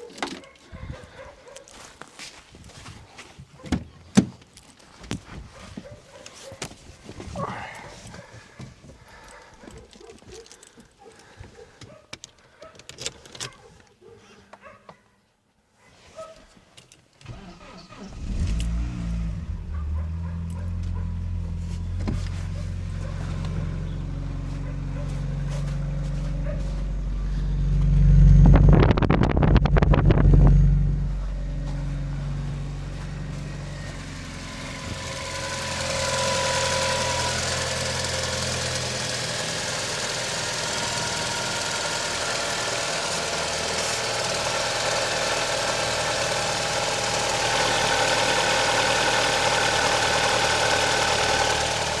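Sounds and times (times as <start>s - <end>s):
car engine idling and revving: 17.2s - 52.0s
steady whine: 18.2s - 44.4s.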